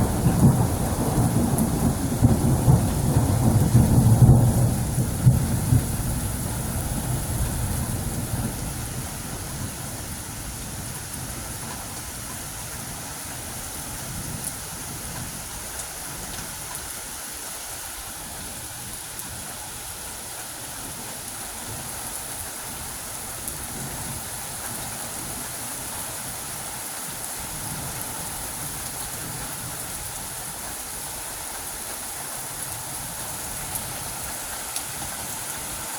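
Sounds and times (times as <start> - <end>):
thunder rumble: 0.0 - 12.0
steady rain falling: 0.0 - 35.9.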